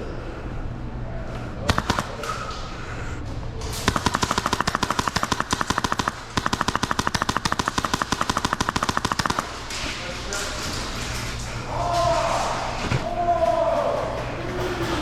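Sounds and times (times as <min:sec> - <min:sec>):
airsoft gun firing full-auto: 0:01.6 - 0:02.5, 0:03.8 - 0:09.7.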